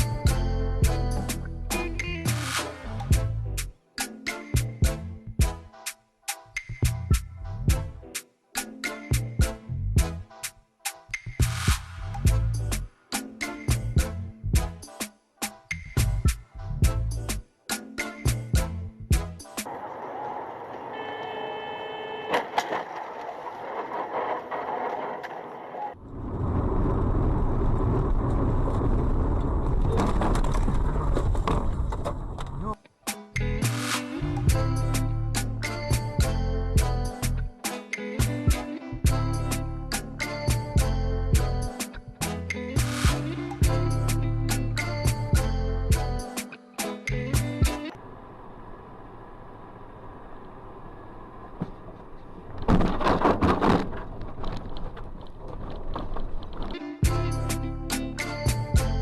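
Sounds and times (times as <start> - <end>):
road vehicle rumble: 22.3 - 32.7, 47.9 - 56.7.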